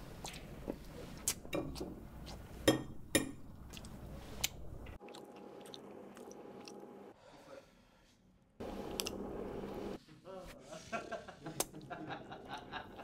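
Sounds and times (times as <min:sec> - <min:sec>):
man chewing loudly: 0:03.7 - 0:06.8.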